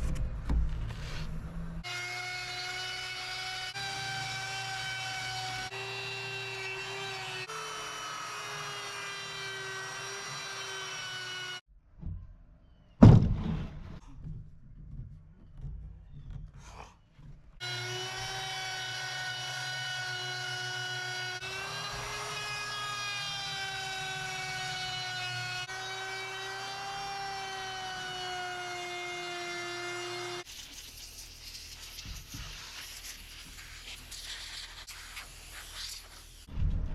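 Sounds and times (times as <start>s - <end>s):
wood router whining: 1.8s - 11.6s, 17.6s - 30.5s
sharp loud knock: 13.0s - 13.8s.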